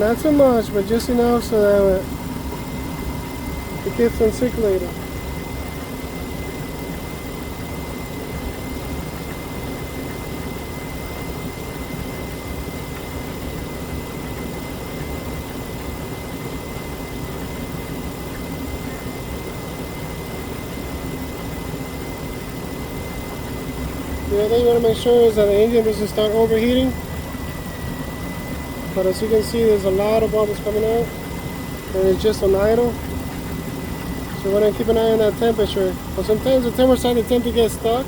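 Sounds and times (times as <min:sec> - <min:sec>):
car engine idling: 0:00.0 - 0:10.8, 0:18.5 - 0:38.0
thin steady whine: 0:00.0 - 0:38.0.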